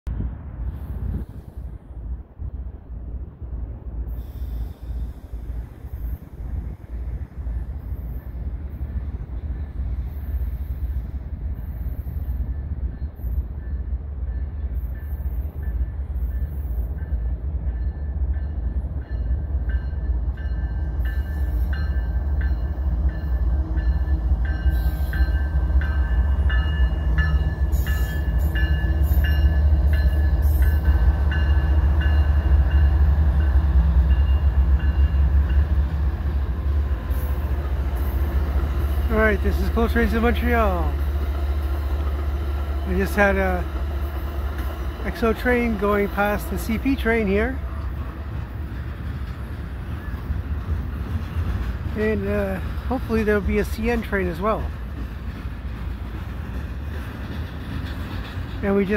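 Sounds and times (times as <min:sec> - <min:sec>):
train rumbling: 0:00.0 - 0:58.9
wheels clicking over rail joints: 0:37.2 - 0:58.9.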